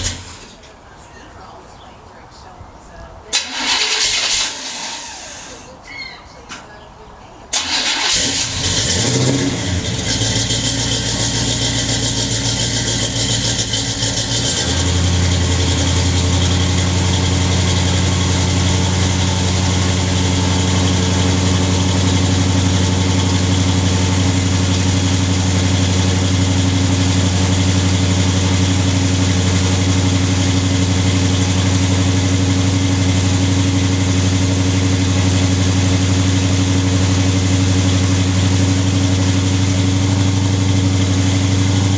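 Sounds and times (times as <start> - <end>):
car engine idling: 0.0 - 5.8, 7.4 - 41.9.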